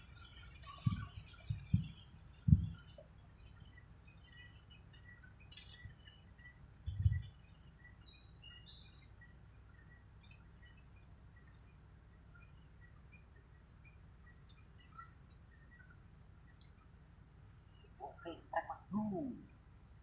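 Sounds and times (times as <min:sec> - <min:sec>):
insects trilling: 0:00.0 - 0:20.0
birds chirping: 0:17.6 - 0:19.8.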